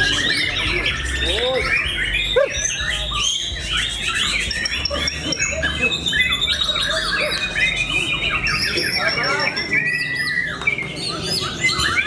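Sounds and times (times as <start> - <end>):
songbirds singing in chorus: 0.0 - 12.0.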